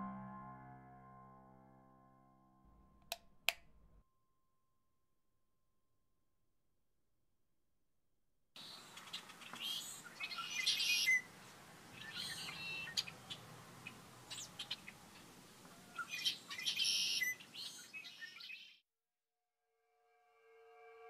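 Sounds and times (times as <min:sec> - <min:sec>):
birds chirping and singing: 0:08.6 - 0:11.3, 0:12.0 - 0:15.0, 0:15.9 - 0:18.7
faint low background noise: 0:08.6 - 0:18.1.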